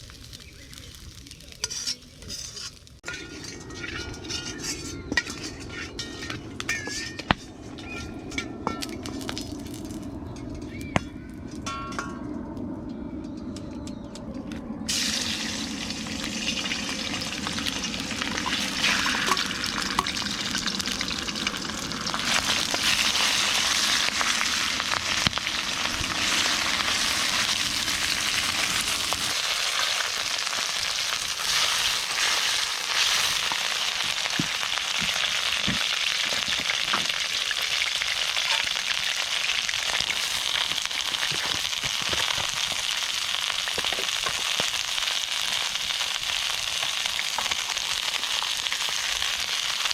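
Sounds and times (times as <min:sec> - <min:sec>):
fire crackles: 0:00.0 - 0:49.9
low rumble: 0:03.1 - 0:29.6
food sizzling in a wok: 0:14.9 - 0:49.9.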